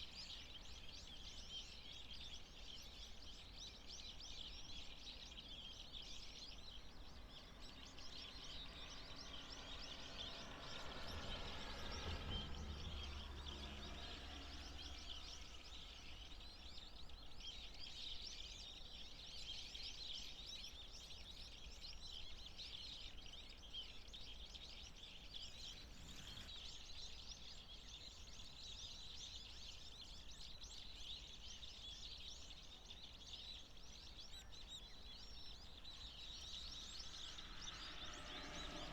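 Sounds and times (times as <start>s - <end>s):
birds trilling: 5.4s - 19.2s, 25.1s - 29.1s, 32.4s - 38.9s
low rumble: 9.7s - 16.2s, 36.4s - 38.9s.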